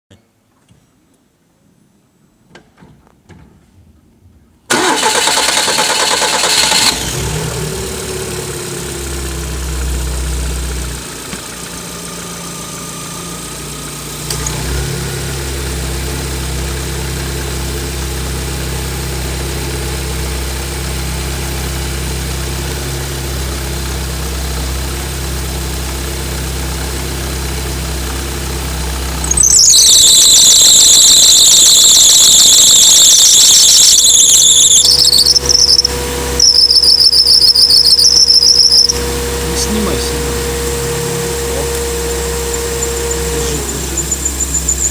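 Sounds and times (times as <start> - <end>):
brief high squeal at start-up: 4.7 - 7.3, 29.2 - 44.9
car engine cranking and starting: 4.7 - 44.9
car engine idling: 4.7 - 44.9
belt whistling squeal: 29.2 - 44.9.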